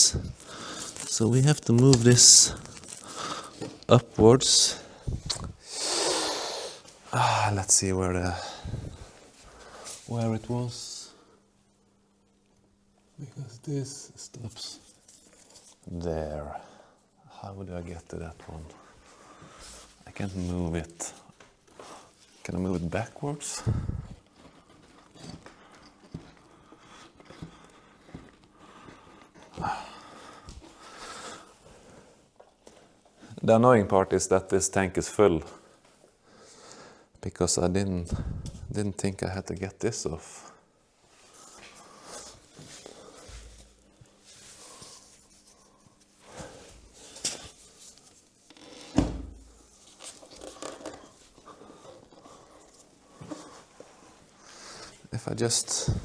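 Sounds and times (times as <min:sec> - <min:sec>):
man breathing heavily: 0:00.0 - 0:01.1, 0:02.5 - 0:03.8, 0:08.3 - 0:10.0, 0:18.8 - 0:20.0, 0:23.5 - 0:33.0, 0:40.6 - 0:47.7, 0:50.9 - 0:55.1
rubbing and handling noises: 0:00.0 - 0:04.6, 0:14.3 - 0:16.0, 0:41.0 - 0:56.0.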